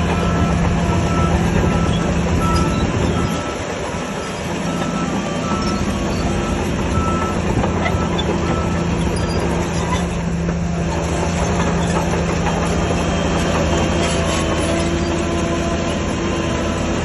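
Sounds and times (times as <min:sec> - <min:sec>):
reversing alarm beeping: 0:00.0 - 0:09.4
heavy diesel machine rattling: 0:00.0 - 0:17.0.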